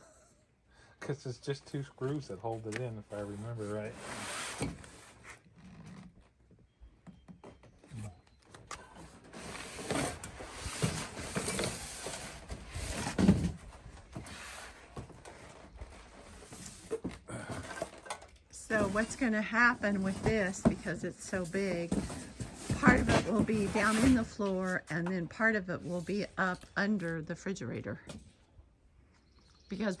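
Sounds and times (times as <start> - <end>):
objects rubbed and scraped: 3.1 - 5.9, 9.0 - 18.0, 18.6 - 26.6.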